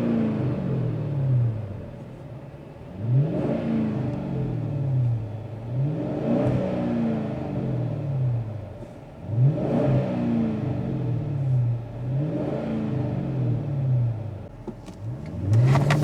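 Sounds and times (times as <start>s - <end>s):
car exhaust revving: 14.5s - 16.0s.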